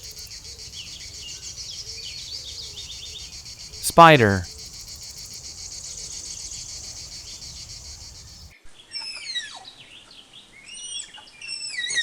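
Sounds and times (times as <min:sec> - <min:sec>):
insects chirring: 0:00.0 - 0:08.5
songbirds whistling: 0:00.0 - 0:08.5.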